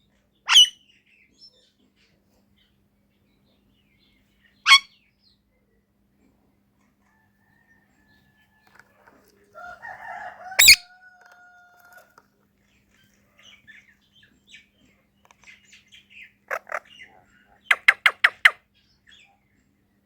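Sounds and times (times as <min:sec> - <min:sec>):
parrot whistling: 0:00.5 - 0:00.7, 0:10.6 - 0:10.8
parrot screeching: 0:00.5 - 0:00.8, 0:04.7 - 0:04.9, 0:10.6 - 0:10.9.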